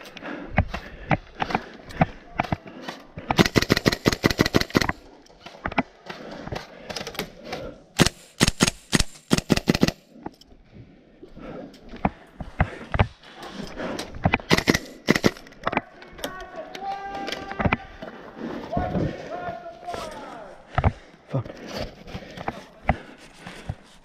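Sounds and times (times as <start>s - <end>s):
airsoft rifle full-auto bursts: 3.4s - 5.0s, 8.0s - 10.0s, 14.5s - 15.5s.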